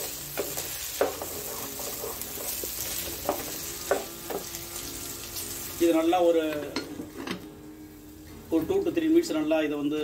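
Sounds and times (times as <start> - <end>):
onions sizzling in hot oil: 0.0 - 7.1
wooden spatula scraping pan: 0.3 - 5.8.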